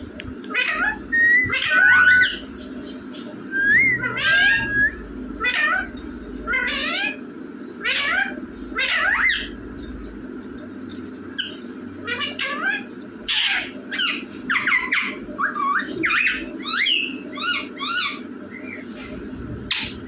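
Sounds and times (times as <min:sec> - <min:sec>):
parrot shrill calls: 0:00.6 - 0:02.4, 0:04.0 - 0:04.8.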